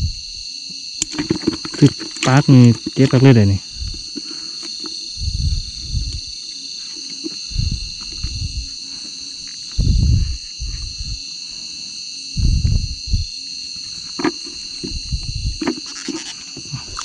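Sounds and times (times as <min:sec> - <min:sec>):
low rumbling thumps: 0:00.0 - 0:00.3, 0:01.1 - 0:04.2, 0:05.1 - 0:06.4, 0:07.5 - 0:08.8, 0:09.8 - 0:11.2, 0:12.4 - 0:13.4, 0:14.2 - 0:15.6
chorus of insects: 0:00.0 - 0:17.0.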